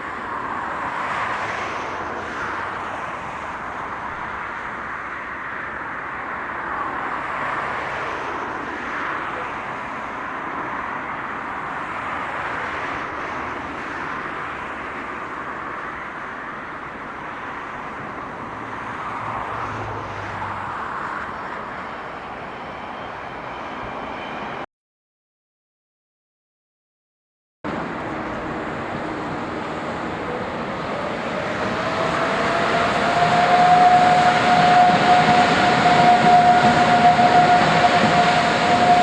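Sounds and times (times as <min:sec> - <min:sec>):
train wheels rushing on rails: 0:27.7 - 0:39.0.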